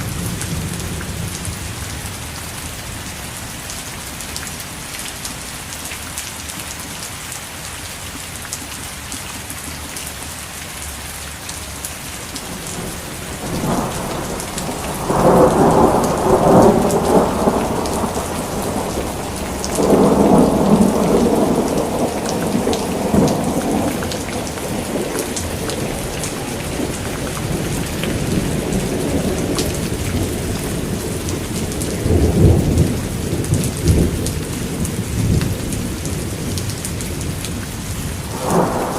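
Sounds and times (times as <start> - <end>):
steady rain: 0.0 - 38.9
rolling thunder: 12.4 - 37.6, 38.2 - 38.9.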